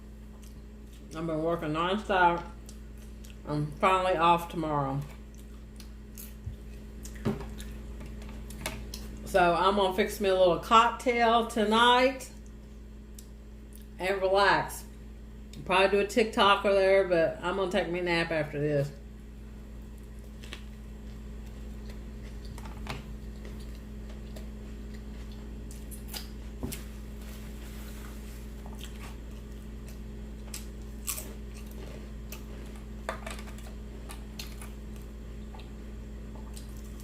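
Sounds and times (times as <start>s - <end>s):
steady low hum: 0.0s - 37.0s
person chewing food: 0.2s - 1.2s, 2.6s - 3.4s, 5.2s - 9.2s, 19.8s - 37.0s
food crunches: 19.8s - 27.0s, 28.5s - 37.0s.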